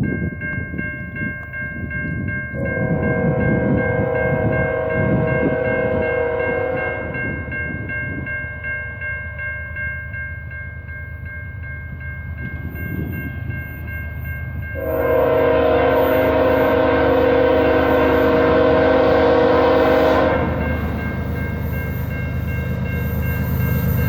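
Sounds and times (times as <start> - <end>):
high ringing: 0.0 - 24.0
train rumble: 0.0 - 24.0
train horn chord: 2.6 - 7.5, 14.8 - 21.2.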